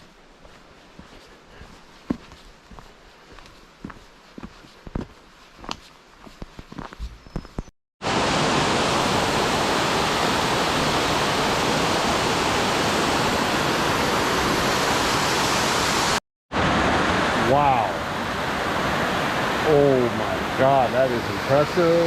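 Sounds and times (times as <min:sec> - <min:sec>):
footsteps on a trail: 0:00.0 - 0:07.7
waterfall rushing: 0:08.0 - 0:22.0.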